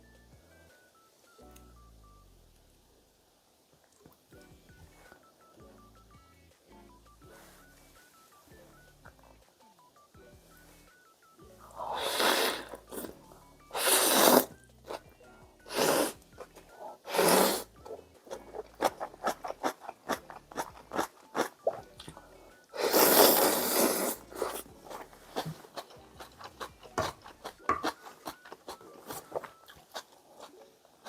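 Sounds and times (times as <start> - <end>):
person slurping noodles: 11.8 - 15.0, 15.7 - 16.2, 16.9 - 17.7, 22.8 - 25.6
wet chewing clicks: 17.2 - 22.2, 22.9 - 31.0.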